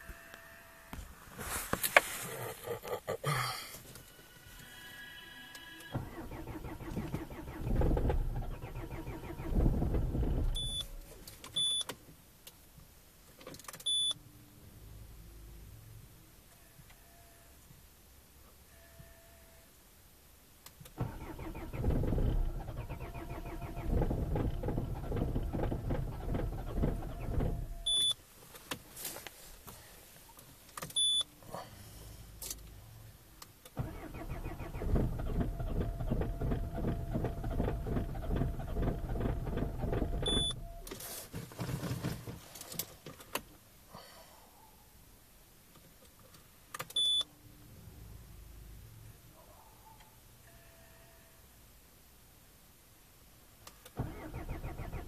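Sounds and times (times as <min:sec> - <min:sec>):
diesel engine cranking: 0:05.9 - 0:11.7, 0:21.0 - 0:28.2, 0:33.8 - 0:41.0, 0:54.0 - 0:55.0
short electronic beeps: 0:10.6 - 0:10.9, 0:11.6 - 0:11.8, 0:13.9 - 0:14.2, 0:27.8 - 0:28.2, 0:31.0 - 0:31.2, 0:40.3 - 0:40.9, 0:47.0 - 0:47.3.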